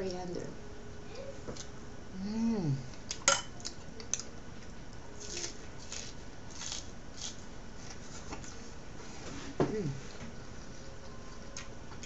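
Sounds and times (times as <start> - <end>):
soft chewing and mouth sounds: 9.9 - 12.0.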